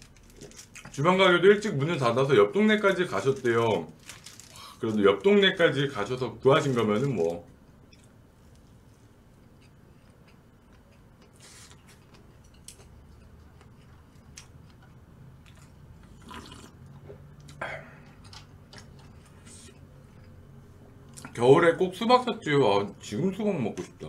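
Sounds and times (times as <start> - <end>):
person chewing quietly: 0.1 - 1.0, 7.8 - 21.4
soft crackles: 2.9 - 5.7.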